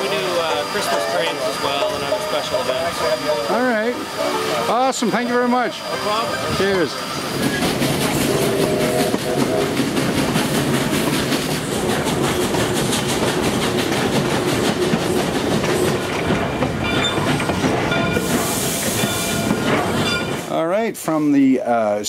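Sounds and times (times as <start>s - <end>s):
train wheels clattering on rails: 5.0s - 20.6s.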